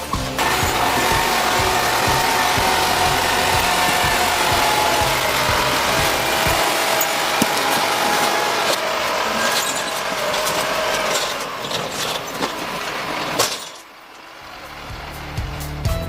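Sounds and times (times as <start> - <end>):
heavy machinery clattering: 0.0 - 15.4
scattered knocks: 0.4 - 8.9.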